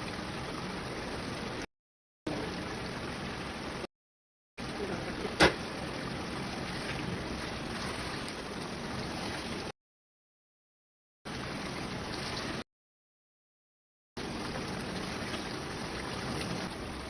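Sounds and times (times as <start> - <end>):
food sizzling and bubbling: 0.0 - 1.7, 4.6 - 9.8, 11.3 - 12.6, 14.2 - 17.0.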